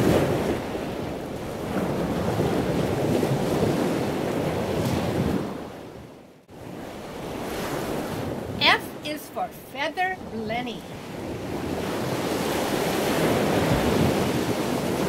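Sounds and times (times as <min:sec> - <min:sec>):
rushing water: 0:00.0 - 0:02.7, 0:07.0 - 0:15.0.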